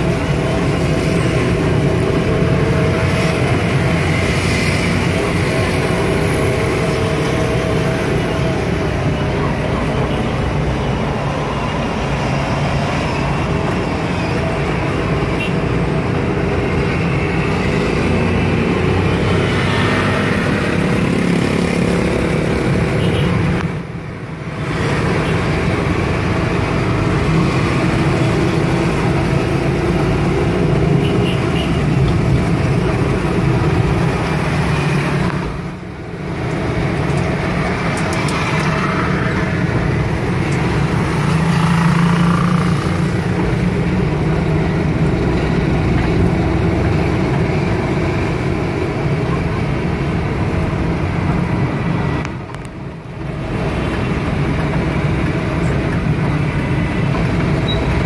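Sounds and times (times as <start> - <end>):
road and traffic noise: 0.0 - 58.0.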